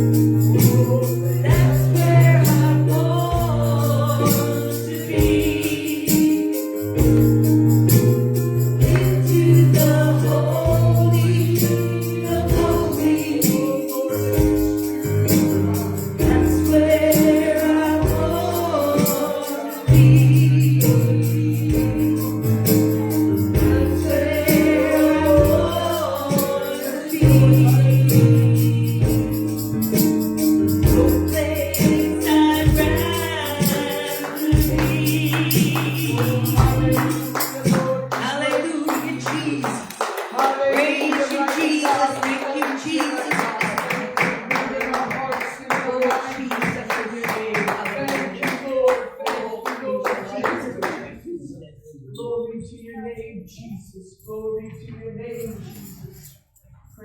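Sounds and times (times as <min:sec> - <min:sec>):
band with bass and percussion: 0:00.0 - 0:38.2
voices singing worship song: 0:00.0 - 0:53.4.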